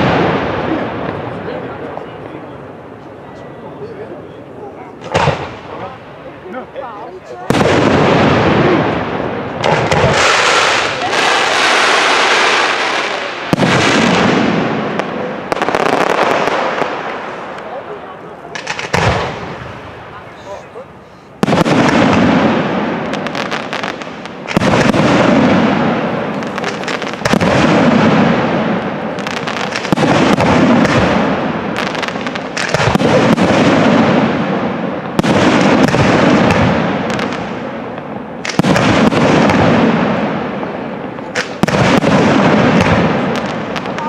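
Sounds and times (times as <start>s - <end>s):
firework booms: 0.0s - 2.9s, 4.7s - 6.3s, 6.9s - 20.5s, 21.4s - 44.0s.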